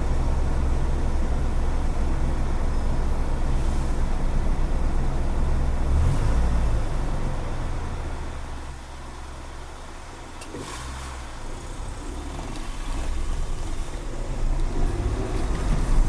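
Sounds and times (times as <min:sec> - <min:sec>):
car engine: 0:00.0 - 0:16.0
road noise: 0:00.0 - 0:16.0.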